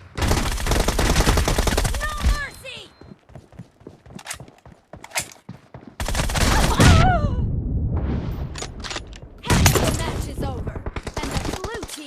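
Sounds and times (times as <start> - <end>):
loud blast with low rumble: 6.8 - 8.6.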